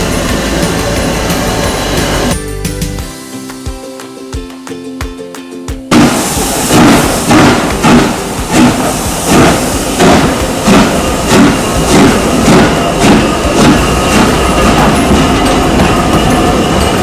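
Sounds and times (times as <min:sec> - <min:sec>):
steady steam hiss: 0:00.0 - 0:02.4, 0:05.9 - 0:17.0
steam locomotive chuffing: 0:00.0 - 0:03.0, 0:05.9 - 0:17.0
plucked string music: 0:00.0 - 0:17.0.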